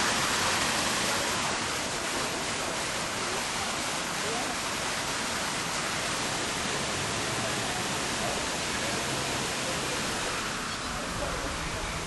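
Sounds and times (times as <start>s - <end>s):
waterfall rushing hiss: 0.0s - 12.0s.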